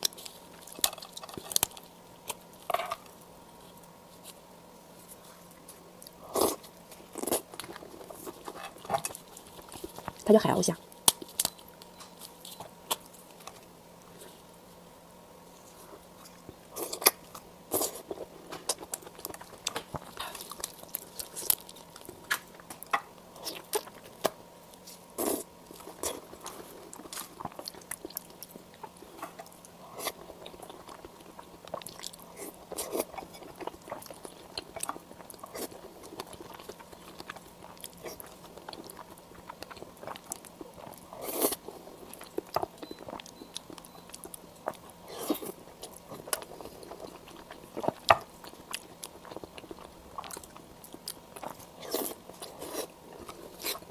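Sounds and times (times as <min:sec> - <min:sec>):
crunchy chewing: 0:15.5 - 0:53.9.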